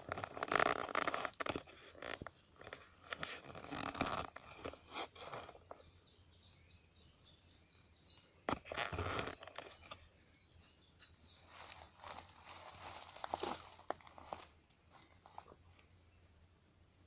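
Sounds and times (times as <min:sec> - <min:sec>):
wood fire crackling: 0:00.0 - 0:06.0.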